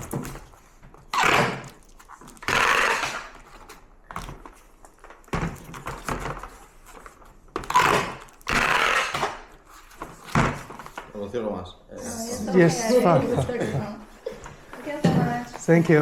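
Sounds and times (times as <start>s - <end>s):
packing tape pulled off roll: 0.0s - 11.0s.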